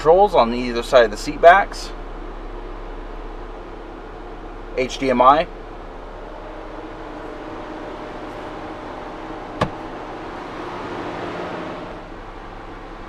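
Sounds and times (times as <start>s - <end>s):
car engine humming: 0.0s - 13.0s.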